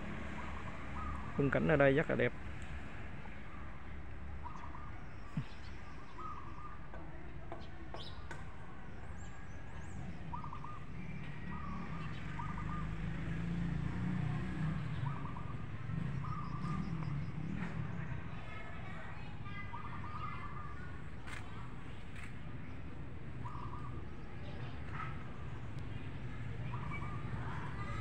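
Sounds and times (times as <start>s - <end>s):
bird chirping: 9.1s - 13.1s, 14.8s - 17.8s.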